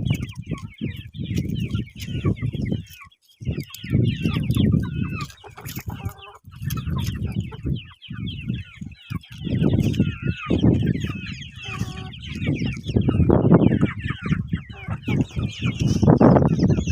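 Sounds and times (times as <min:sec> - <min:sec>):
chickens peeping and calling: 0:00.0 - 0:16.9.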